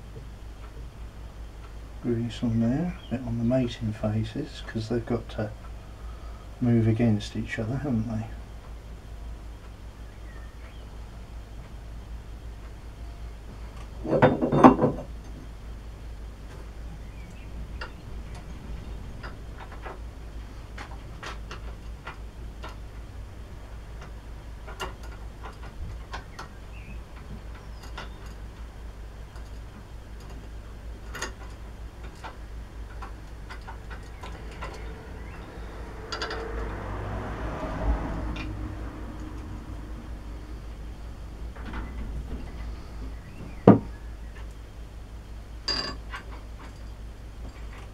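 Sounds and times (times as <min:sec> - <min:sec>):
light clicks and taps of parts: 0:20.6 - 0:23.1, 0:23.7 - 0:28.7, 0:29.3 - 0:36.8
metal parts clattering: 0:36.1 - 0:36.6.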